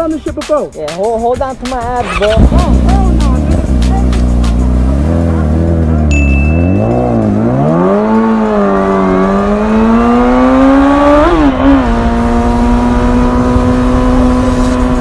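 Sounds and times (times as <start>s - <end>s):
motorcycle engine accelerating: 2.0s - 15.0s.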